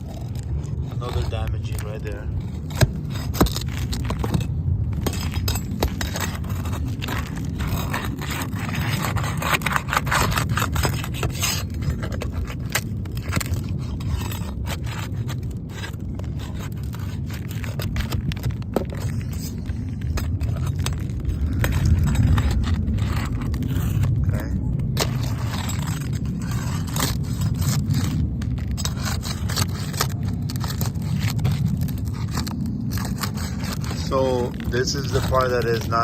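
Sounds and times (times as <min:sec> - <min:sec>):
shoes scraping on roof shingles: 0:00.0 - 0:36.0
steady low rumble: 0:00.0 - 0:36.0.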